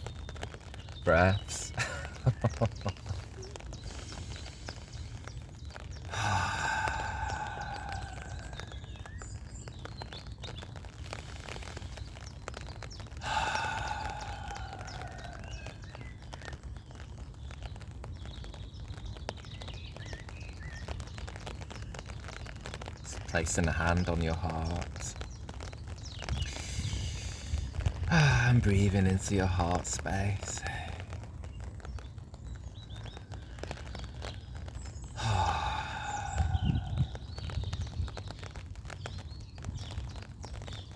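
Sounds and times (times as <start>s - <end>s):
low outdoor rumble: 0.0s - 10.0s
faint bird chirps: 0.0s - 17.0s
slow deep breathing: 3.0s - 9.1s, 11.0s - 12.3s, 13.2s - 15.7s, 26.4s - 28.8s, 30.5s - 31.3s, 33.1s - 37.6s
sighing out-breath: 6.1s - 8.9s, 13.2s - 15.7s, 26.4s - 28.6s, 35.1s - 37.4s.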